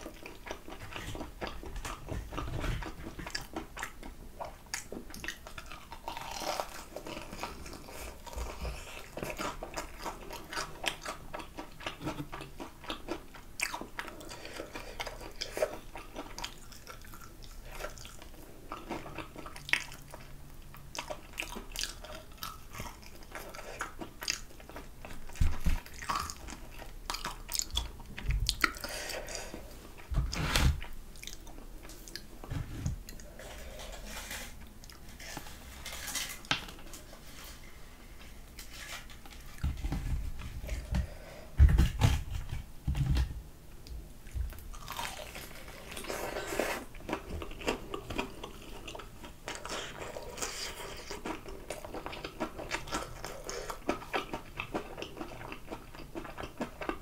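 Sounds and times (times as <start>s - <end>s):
chewing crispy fried chicken: 0.0s - 30.1s, 44.2s - 57.0s.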